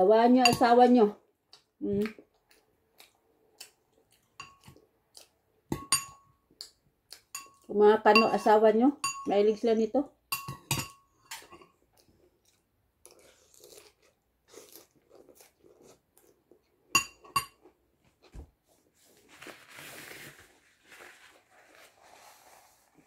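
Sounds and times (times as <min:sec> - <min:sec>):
cutlery clinking on glass bowl: 0:00.4 - 0:00.8, 0:04.4 - 0:04.8, 0:05.7 - 0:06.4, 0:07.3 - 0:09.3, 0:10.3 - 0:11.8, 0:16.9 - 0:17.7
person chewing crunchy salad: 0:01.5 - 0:05.5, 0:11.7 - 0:16.9.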